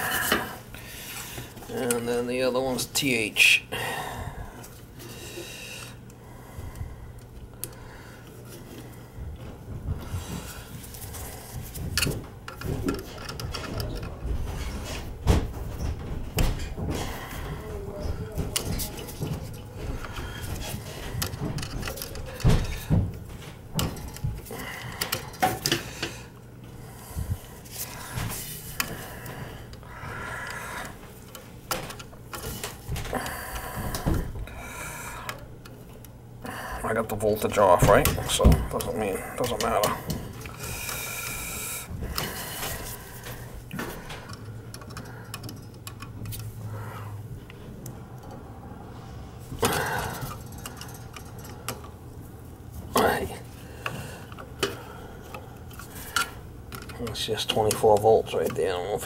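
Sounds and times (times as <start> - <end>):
steady low hum: 0.0 - 59.0
tools clicking and knocking: 11.1 - 26.3, 30.4 - 34.4, 42.0 - 46.6, 49.6 - 52.0, 53.8 - 58.9.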